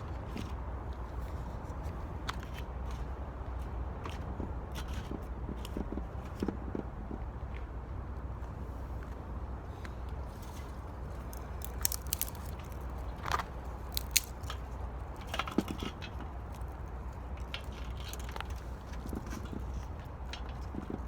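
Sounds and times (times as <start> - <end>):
firewood crackling and snapping: 9.8 - 21.0.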